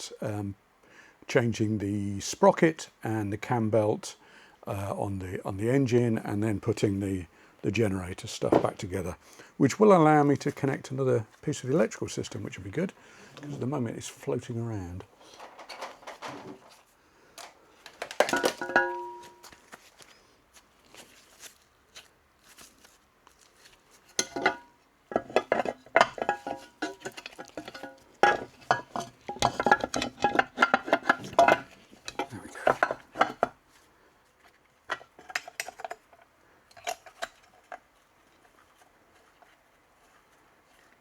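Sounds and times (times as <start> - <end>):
metal engine parts clinking: 17.9 - 19.6, 24.2 - 33.5, 34.9 - 37.9.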